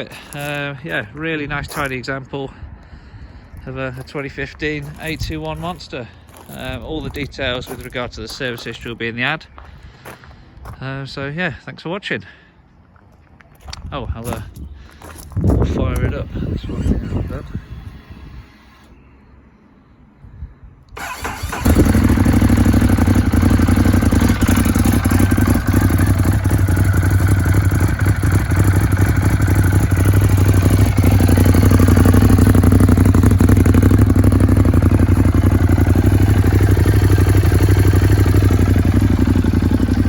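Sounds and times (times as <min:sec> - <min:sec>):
starter cranking: 0:15.9 - 0:18.9, 0:21.0 - 0:40.0
motorcycle engine idling: 0:21.0 - 0:40.0.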